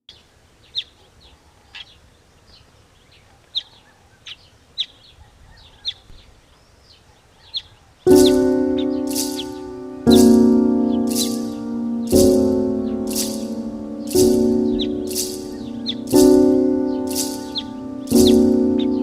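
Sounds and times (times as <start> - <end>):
small bird chirping: 0.1 - 19.0
loud music with ringing chord: 8.1 - 19.0.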